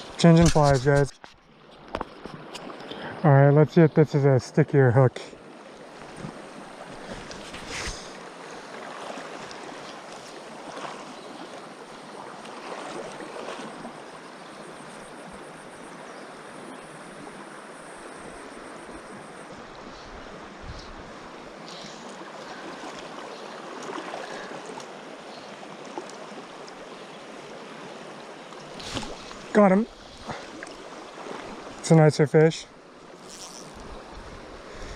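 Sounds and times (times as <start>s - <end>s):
river water rushing: 0.0s - 0.6s, 5.3s - 32.1s.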